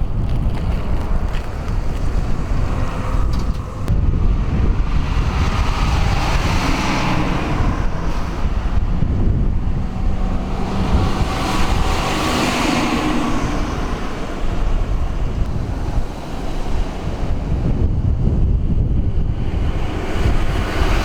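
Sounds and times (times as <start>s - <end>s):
engine hum: 0.0s - 21.0s
wind buffeting microphone: 0.0s - 21.0s.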